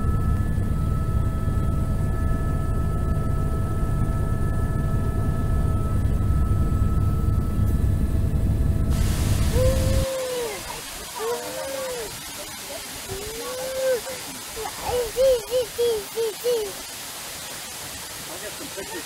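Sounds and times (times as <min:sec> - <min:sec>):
helicopter rumble and whine: 0:00.0 - 0:10.0
bright hiss: 0:08.9 - 0:19.0.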